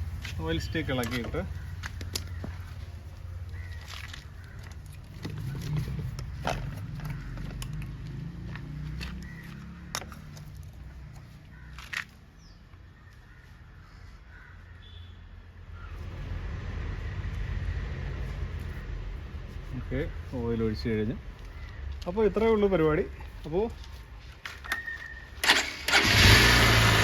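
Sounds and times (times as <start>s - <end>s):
steady low rumble: 0.0s - 7.8s, 15.8s - 22.0s.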